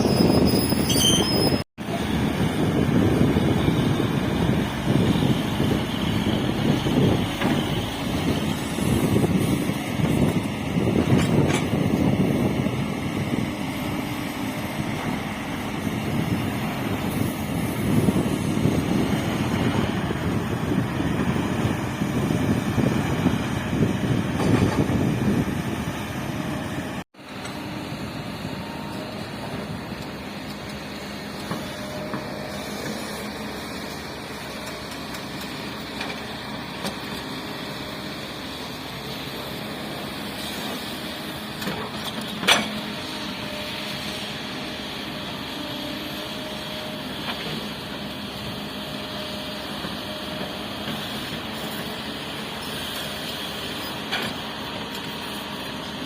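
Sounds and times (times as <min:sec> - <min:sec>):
construction machinery engines running: 0:00.0 - 0:56.0.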